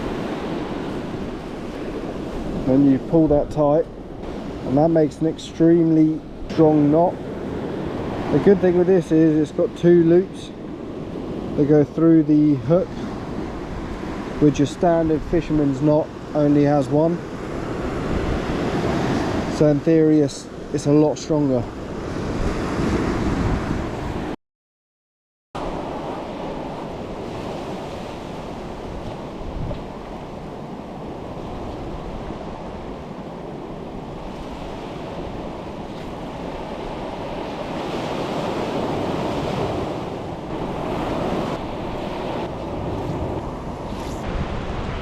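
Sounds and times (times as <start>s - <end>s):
surf washing on a beach: 0.0s - 24.3s, 25.6s - 45.0s
wind buffeting microphone: 17.4s - 19.5s, 21.8s - 24.3s, 25.6s - 45.0s.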